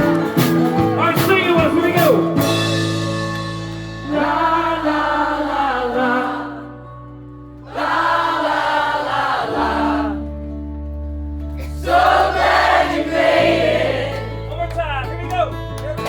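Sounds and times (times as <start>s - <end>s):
voices singing together: 4.0s - 6.8s, 7.6s - 10.4s, 11.6s - 14.3s.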